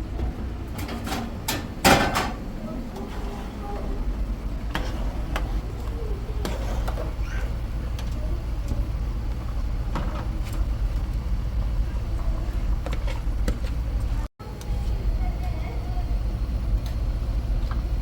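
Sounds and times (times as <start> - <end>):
steady low rumble: 1.4 - 6.6.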